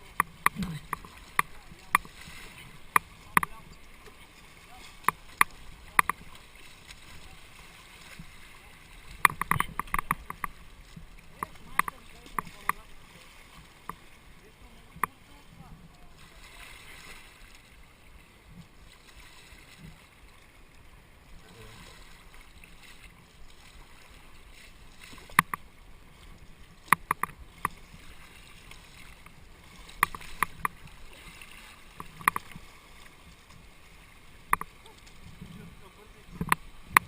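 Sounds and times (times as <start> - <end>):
paddles knocking kayak hull: 0.0 - 6.6, 8.1 - 14.2, 24.6 - 32.8, 34.4 - 37.0
moving water wash: 0.0 - 37.0.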